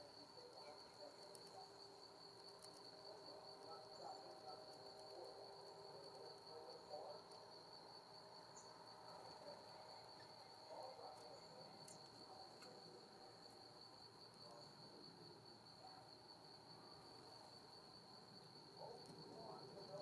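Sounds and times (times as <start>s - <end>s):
high-pitched insect trill: 8.4s - 12.7s
faint ticks: 11.8s - 12.8s.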